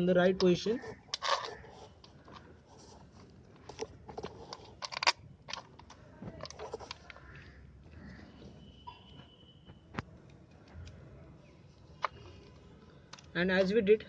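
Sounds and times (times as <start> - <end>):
small metal parts clicking: 4.2 - 7.2.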